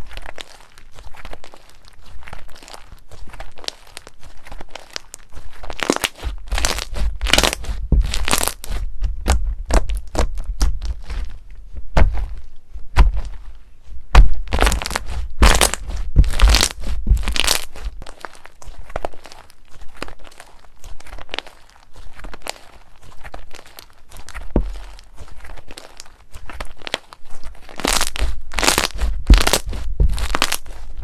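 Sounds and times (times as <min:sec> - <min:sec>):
slime crackling and clicking: 0:00.2 - 0:11.2, 0:14.5 - 0:30.8
low handling thumps: 0:06.3 - 0:17.4.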